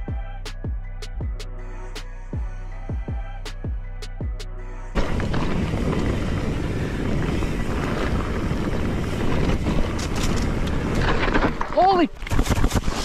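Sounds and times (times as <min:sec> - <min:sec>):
music with deep bass: 0:00.0 - 0:05.0
wind buffeting microphone: 0:05.0 - 0:13.0.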